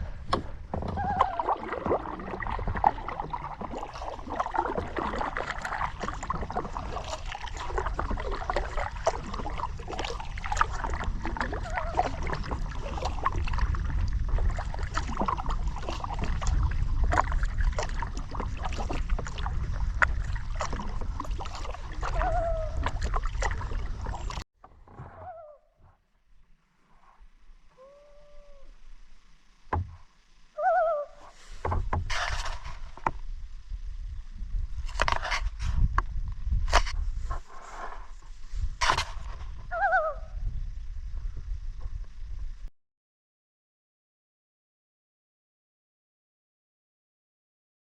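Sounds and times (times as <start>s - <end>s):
paddle strokes splashing: 0.0s - 25.3s, 28.9s - 33.4s, 34.8s - 35.9s, 36.5s - 39.8s
water sloshing and gurgling: 0.0s - 42.7s
short wavering call: 25.1s - 25.8s, 27.7s - 29.0s, 30.5s - 31.4s, 39.7s - 40.4s.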